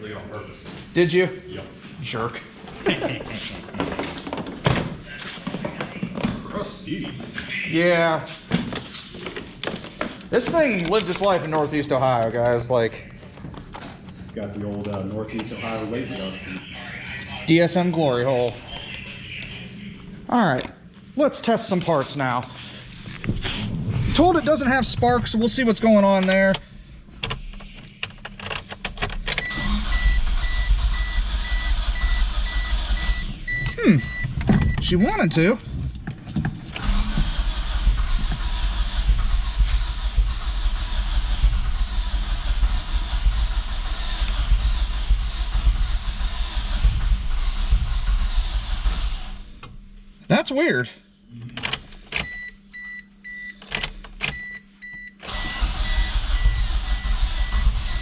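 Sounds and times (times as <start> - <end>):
engine cranking on starter: 29.2 - 33.3, 36.7 - 49.4, 55.2 - 58.0
car warning chime beeping: 29.4 - 35.3.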